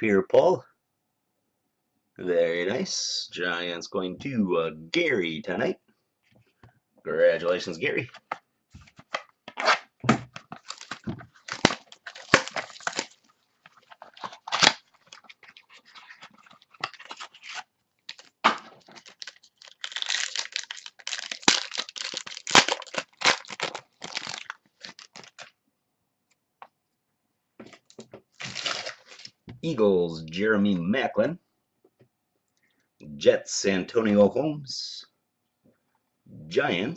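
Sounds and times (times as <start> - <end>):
cards rustling and clicking: 8.0 - 25.5
foil wrappers tearing and crinkling: 10.5 - 25.5, 28.4 - 29.3.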